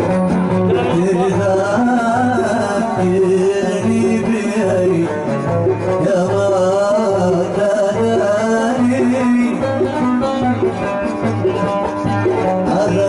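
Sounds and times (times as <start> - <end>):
plucked string instrument: 0.0 - 13.0
man singing with ornaments: 0.7 - 5.3, 6.0 - 10.5, 12.7 - 13.0.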